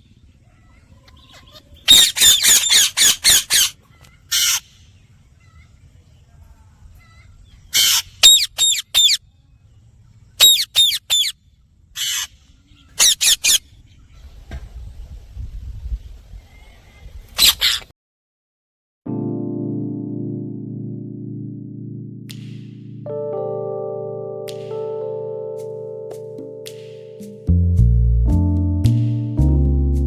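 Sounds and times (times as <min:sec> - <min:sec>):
parrot squawking: 0:01.2 - 0:04.7, 0:07.7 - 0:09.2, 0:10.4 - 0:11.4, 0:12.0 - 0:12.4, 0:13.0 - 0:13.6, 0:17.4 - 0:17.9
parrot screeching: 0:01.8 - 0:03.7, 0:04.3 - 0:04.6, 0:07.7 - 0:09.2, 0:10.4 - 0:11.4, 0:12.0 - 0:12.3, 0:13.0 - 0:13.6, 0:17.4 - 0:17.9.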